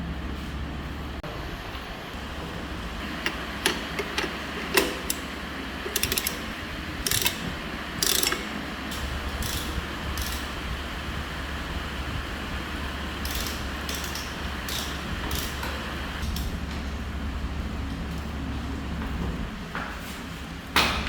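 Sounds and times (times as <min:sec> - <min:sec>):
steady low hum: 0:00.0 - 0:21.0
mechanical clicks: 0:05.9 - 0:10.4.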